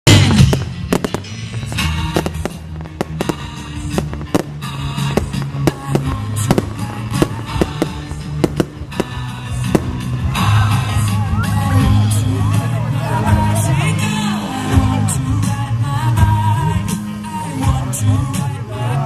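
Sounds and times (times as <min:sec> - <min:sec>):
fireworks bangs: 0:00.1 - 0:11.0
music with bass notes: 0:00.1 - 0:19.0.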